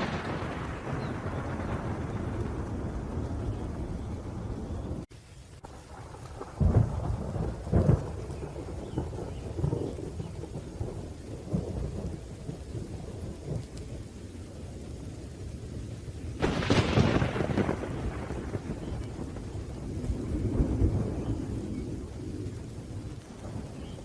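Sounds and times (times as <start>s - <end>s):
sharp loud thunderclap: 0.0s - 5.0s, 5.9s - 13.6s, 16.4s - 22.6s
low rolling thunder: 0.0s - 24.0s
steady rain: 0.0s - 24.0s.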